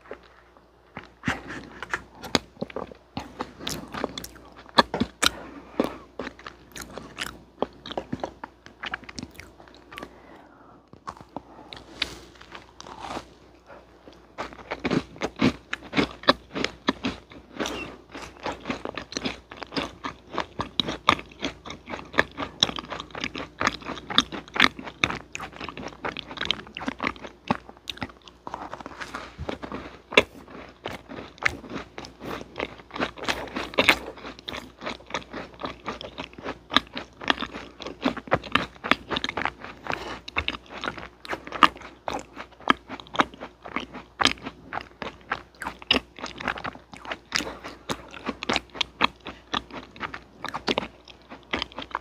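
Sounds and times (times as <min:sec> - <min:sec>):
person chewing crunchy food: 0:00.0 - 0:52.0.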